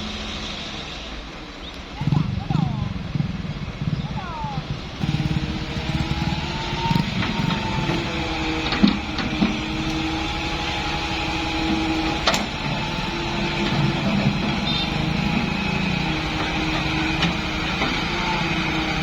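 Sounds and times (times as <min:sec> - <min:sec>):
diesel engine running: 0:00.0 - 0:19.0
steady whine: 0:04.6 - 0:19.0.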